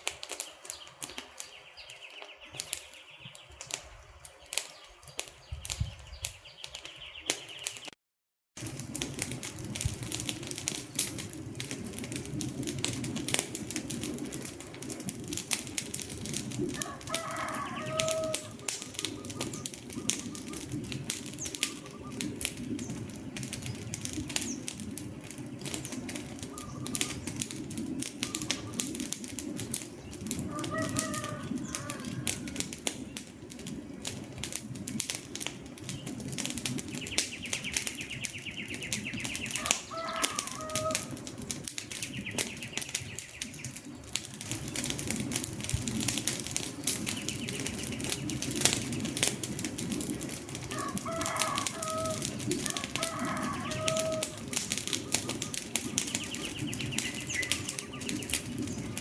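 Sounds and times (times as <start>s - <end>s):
wood fire crackling and popping: 0.0s - 8.0s, 8.6s - 59.0s
bird calls: 0.3s - 8.0s, 16.8s - 23.0s, 25.4s - 29.0s, 29.9s - 33.1s, 36.8s - 41.2s, 41.9s - 44.0s, 46.8s - 49.1s, 50.7s - 59.0s.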